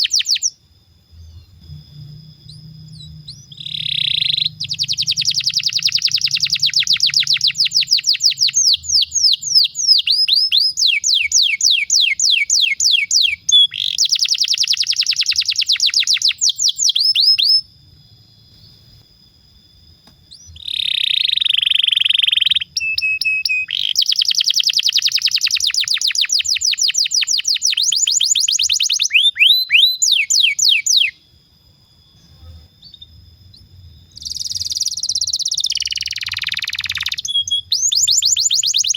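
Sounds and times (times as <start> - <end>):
canary singing trills: 0.0 - 17.7, 20.1 - 31.2, 32.0 - 38.9.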